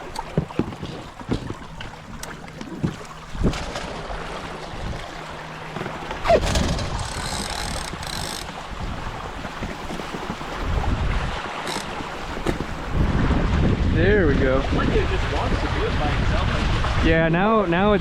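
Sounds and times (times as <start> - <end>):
water rushing past hulls: 0.0 - 18.0
wind buffeting microphone: 6.2 - 18.0.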